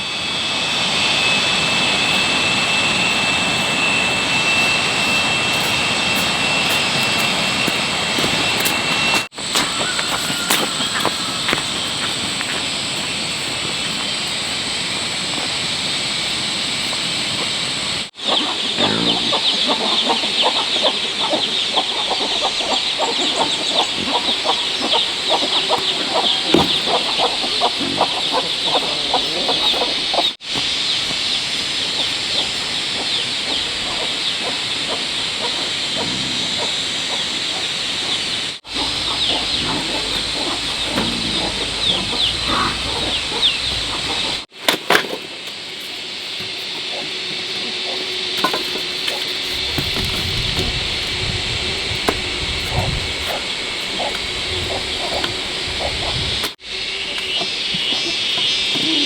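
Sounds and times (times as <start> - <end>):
chickens clucking: 5.0 - 14.6, 18.2 - 30.4, 31.0 - 44.5, 52.1 - 59.0
steady high chirping: 36.6 - 44.5.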